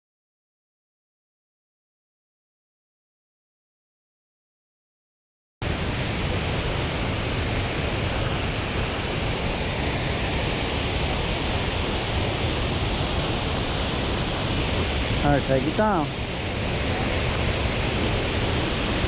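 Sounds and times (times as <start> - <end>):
waterfall roaring: 5.6 - 19.0.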